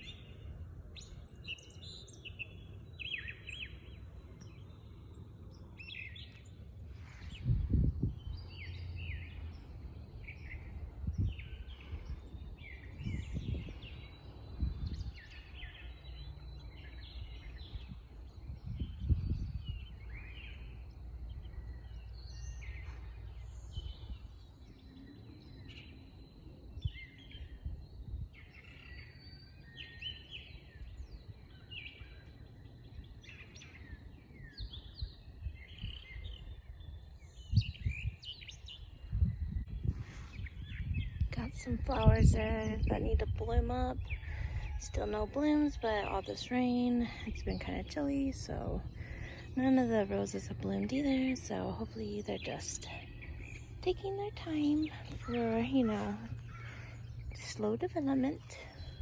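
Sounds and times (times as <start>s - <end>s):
low outdoor rumble: 0.0s - 28.5s, 39.2s - 59.0s
wild birds chirping and singing: 0.0s - 59.0s.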